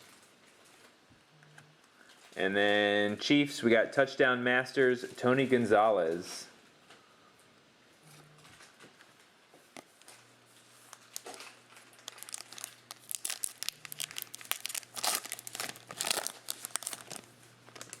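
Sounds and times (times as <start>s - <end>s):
plastic wrapper crinkling and tearing: 10.0s - 18.0s.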